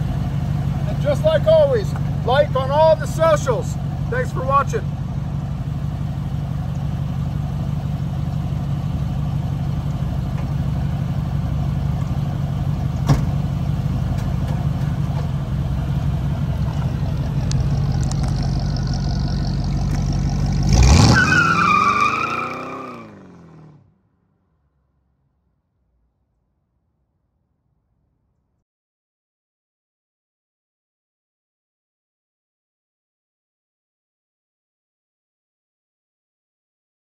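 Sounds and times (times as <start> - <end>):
car engine idling: 0.0 - 23.8
car engine revving: 14.5 - 23.9.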